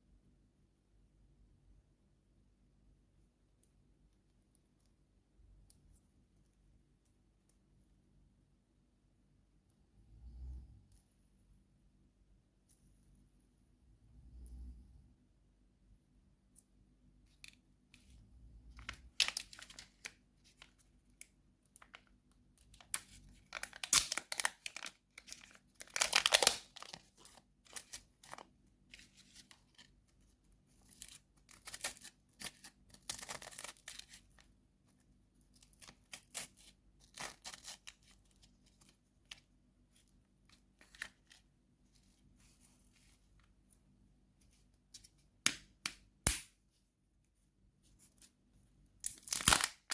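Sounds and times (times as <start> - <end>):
wrappers tearing and crinkling: 22.9 - 28.4, 49.0 - 49.9.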